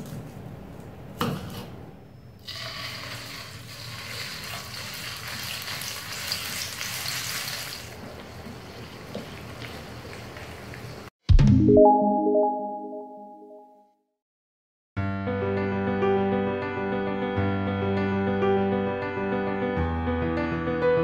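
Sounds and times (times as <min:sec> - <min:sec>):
paste sizzling in hot oil: 0:02.4 - 0:11.1.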